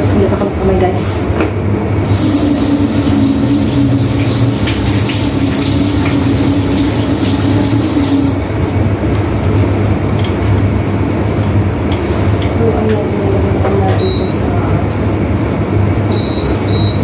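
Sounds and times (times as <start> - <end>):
steady low hum: 0.0 - 17.0
water running from tap: 2.1 - 8.6.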